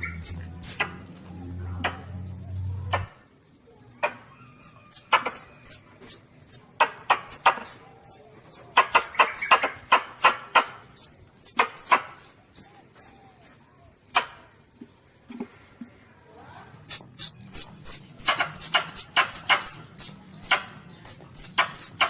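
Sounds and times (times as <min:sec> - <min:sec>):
civet squeaking and squealing: 0:00.0 - 0:00.9, 0:04.4 - 0:13.6, 0:16.9 - 0:22.0.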